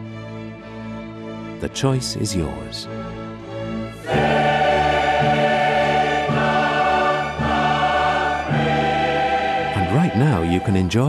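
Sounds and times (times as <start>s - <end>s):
orchestral backing: 0.0s - 11.0s
choir singing held chords: 3.4s - 11.0s.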